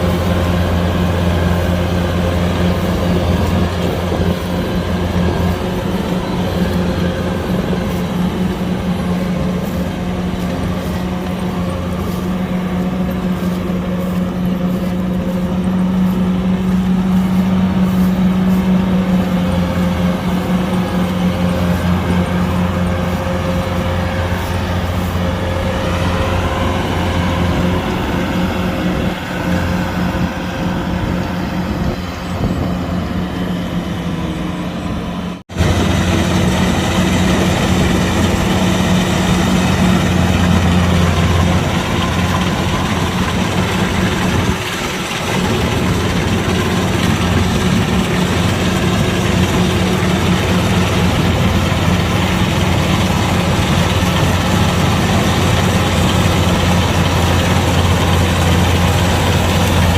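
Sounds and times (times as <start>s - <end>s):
diesel engine humming: 0.0s - 59.9s.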